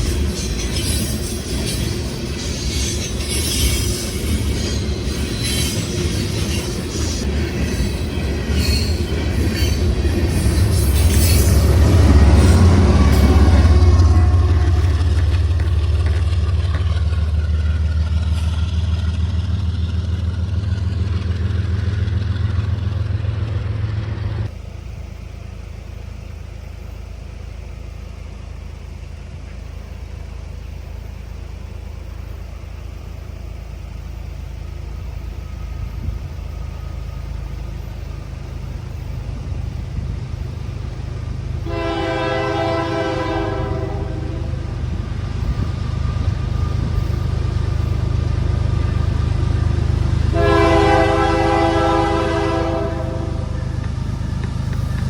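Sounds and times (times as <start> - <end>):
diesel locomotive engine hum: 0.0 - 55.0
train rumbling: 0.0 - 55.0
locomotive air horn: 41.6 - 44.8, 50.3 - 53.7.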